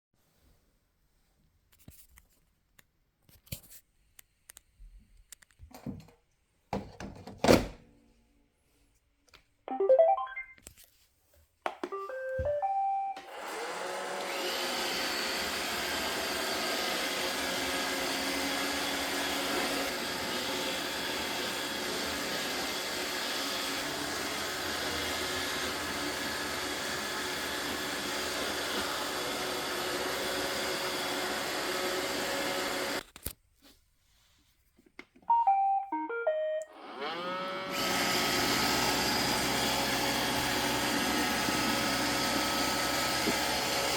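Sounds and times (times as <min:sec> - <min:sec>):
robot vacuum start-up tune: 0:11.9 - 0:14.4, 0:35.3 - 0:39.0
vacuum and brush motors running: 0:13.2 - 0:33.0, 0:36.8 - 0:43.9.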